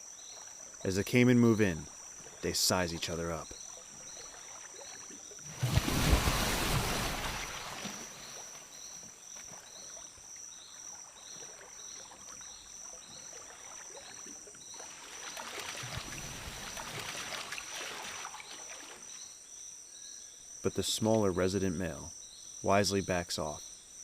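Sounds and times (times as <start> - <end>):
water sloshing and splashing: 0.0 - 19.4
insect chirping: 0.0 - 24.0
insect drone: 0.0 - 24.0.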